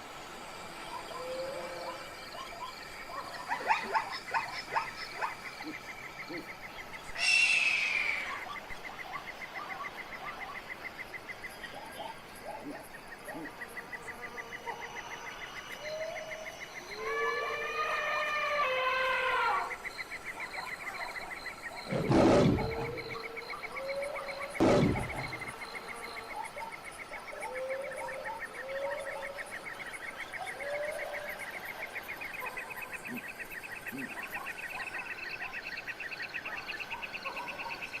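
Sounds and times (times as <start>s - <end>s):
wavering animal call: 7.2s - 8.5s, 16.9s - 19.8s
pulsing insect trill: 11.4s - 32.4s
deep roar-like animal calls: 21.9s - 24.0s, 24.6s - 25.8s.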